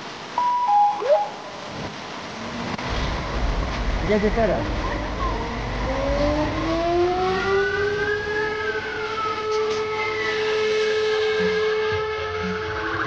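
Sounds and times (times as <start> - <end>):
higher siren rising and falling: 0.4 - 1.6, 5.4 - 13.0
siren wailing: 0.4 - 1.6, 6.0 - 13.0.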